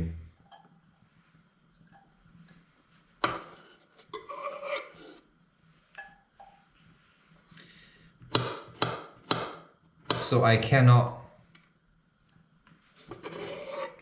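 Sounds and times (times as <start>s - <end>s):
scraping in kitchen: 3.2s - 5.3s, 12.9s - 14.0s.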